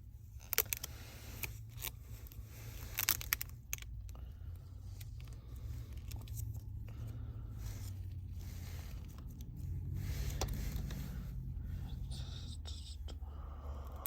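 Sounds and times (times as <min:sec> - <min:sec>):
steady low hum: 0:00.0 - 0:14.0
rustling and scraping: 0:04.7 - 0:12.1.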